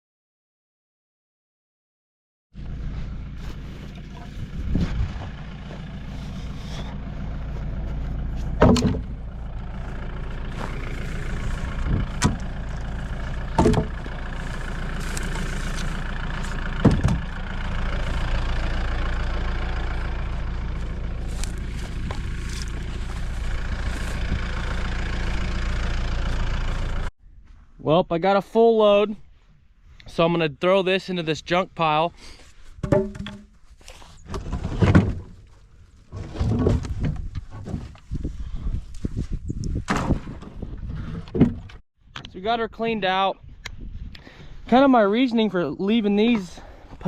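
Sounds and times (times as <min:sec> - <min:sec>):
jeep engine idling: 0:02.6 - 0:27.1
wooden posts thumping: 0:08.3 - 0:18.7, 0:32.8 - 0:33.6, 0:36.1 - 0:38.1, 0:39.8 - 0:41.8.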